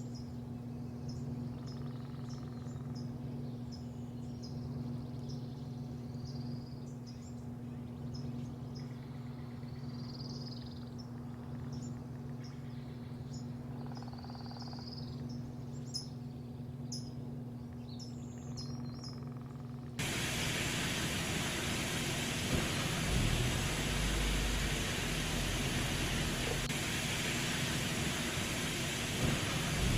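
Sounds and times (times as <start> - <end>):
small birds chirping: 0.0 - 29.9
steady mechanical hum: 0.0 - 29.9
loud steady rushing noise: 20.0 - 29.9.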